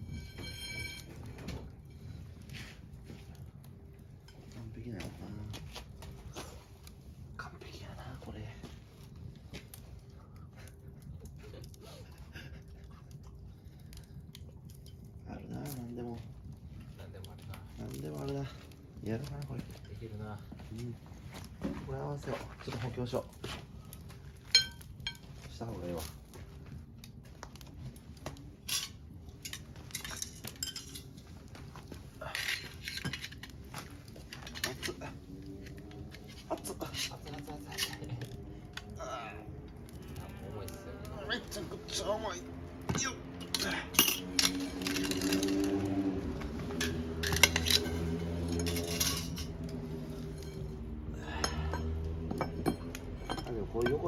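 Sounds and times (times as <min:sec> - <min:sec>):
metal clinks and clanks: 0:00.0 - 0:02.6, 0:24.0 - 0:26.4, 0:27.5 - 0:40.4, 0:41.3 - 0:54.0
steady low hum: 0:26.3 - 0:54.0
scraping rustles: 0:42.5 - 0:51.1.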